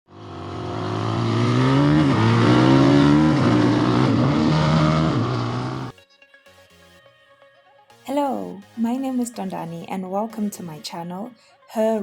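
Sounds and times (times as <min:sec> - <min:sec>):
motorcycle engine running hard: 0:00.1 - 0:05.9.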